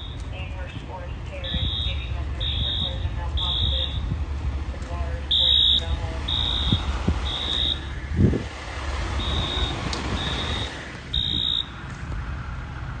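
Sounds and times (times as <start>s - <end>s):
electronic alarm beeping: 0.0s - 4.1s, 5.0s - 7.9s, 9.2s - 11.8s
low engine rumble: 0.0s - 13.0s.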